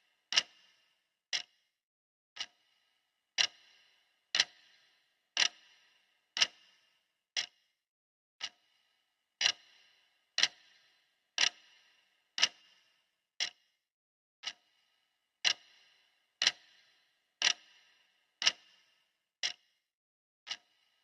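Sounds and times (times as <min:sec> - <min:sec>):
timer ticking: 0:03.4 - 0:05.8, 0:09.4 - 0:10.8.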